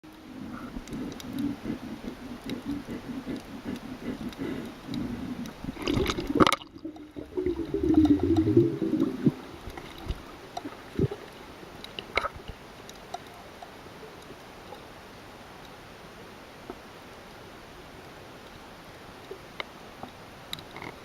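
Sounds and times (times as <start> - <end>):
sea water sloshing: 0.3 - 13.3.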